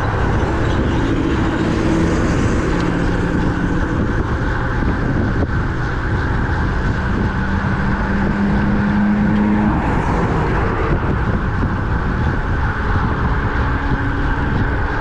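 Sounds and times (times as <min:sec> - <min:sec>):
motor traffic: 0:00.0 - 0:15.0
wind rushing over microphone: 0:00.0 - 0:15.0.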